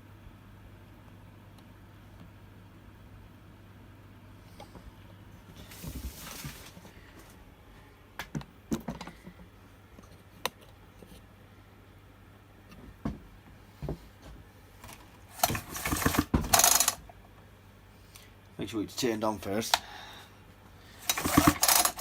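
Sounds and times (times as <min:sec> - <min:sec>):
steady low hum: 0:00.0 - 0:22.0
short rustle: 0:05.6 - 0:07.1
knocks and clicks of tools: 0:14.8 - 0:17.2, 0:21.0 - 0:22.0.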